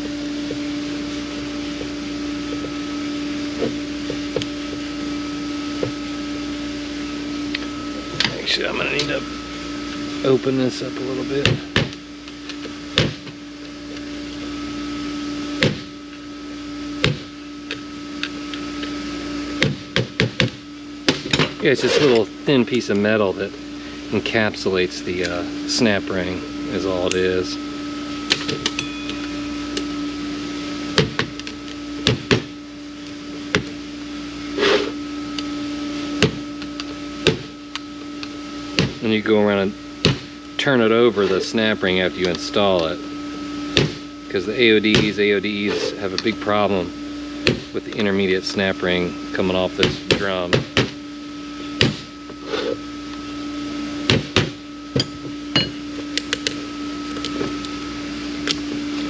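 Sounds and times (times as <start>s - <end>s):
steady hum: 0.0s - 59.0s
metal scrape: 21.7s - 22.2s.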